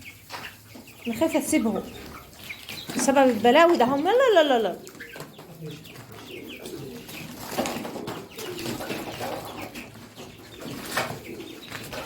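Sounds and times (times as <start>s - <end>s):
birds chirping: 0.0s - 12.0s
low cooing calls: 3.8s - 12.0s.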